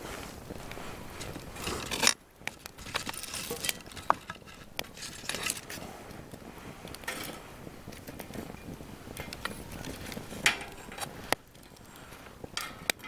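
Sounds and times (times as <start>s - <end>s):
wind noise: 0.0s - 13.0s
metal cookware clinking: 12.6s - 13.0s.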